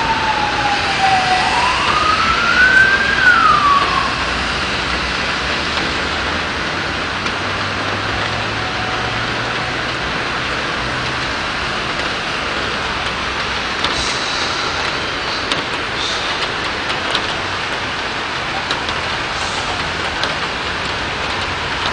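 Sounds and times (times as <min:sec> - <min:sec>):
rain on a street: 0:00.0 - 0:21.9.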